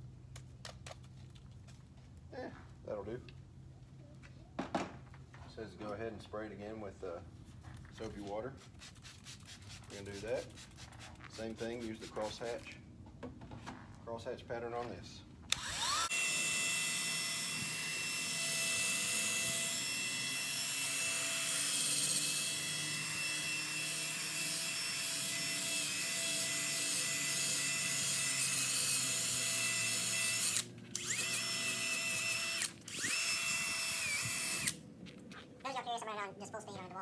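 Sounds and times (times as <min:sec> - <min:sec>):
sanding pad scrubbing: 0:08.6 - 0:12.7
power drill motor whine: 0:15.5 - 0:34.8.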